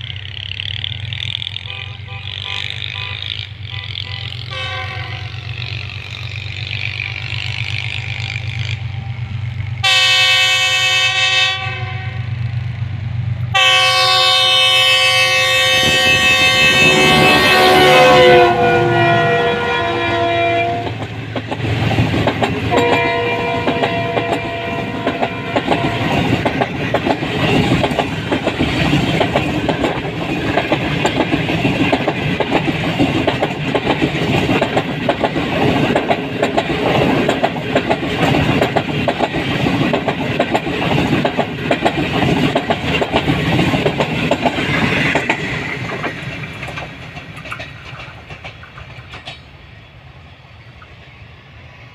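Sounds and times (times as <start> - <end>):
train wheels clattering: 0.0 - 10.7, 15.0 - 49.6
train horn chord: 1.6 - 5.6, 9.8 - 12.4, 13.5 - 21.0, 22.6 - 26.4.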